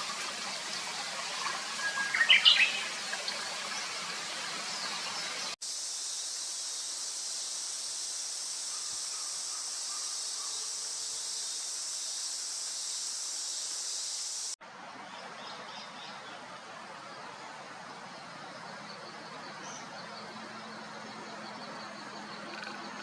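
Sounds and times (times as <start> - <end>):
quiet outdoor ambience: 0.0 - 23.0
cicadas chorus: 5.6 - 14.6, 18.4 - 23.0.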